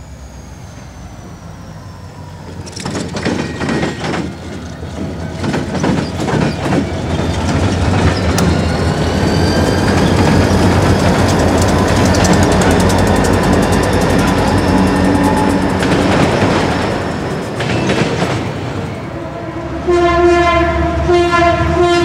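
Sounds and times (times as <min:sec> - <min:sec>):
rolling clatter of train cars: 0:00.0 - 0:19.5
low drone of locomotive engines: 0:00.0 - 0:22.0
wheels banging over rail crossing: 0:02.4 - 0:19.0.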